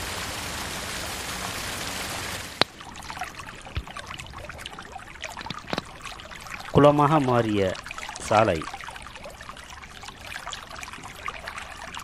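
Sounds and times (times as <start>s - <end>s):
heavy rain hissing: 0.0s - 2.6s
rushing runoff water: 0.0s - 12.0s
water dripping and splashing: 0.0s - 12.0s.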